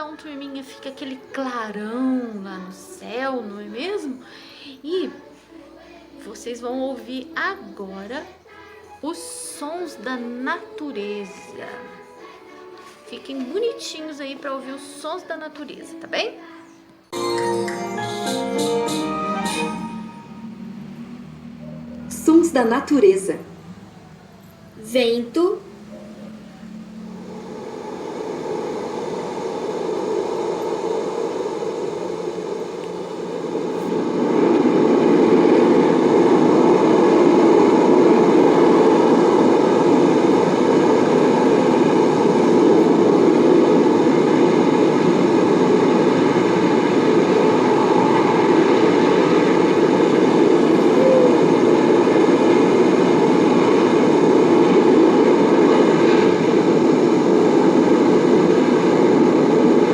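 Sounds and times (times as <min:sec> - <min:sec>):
strong wind blowing: 0:20.1 - 0:59.9.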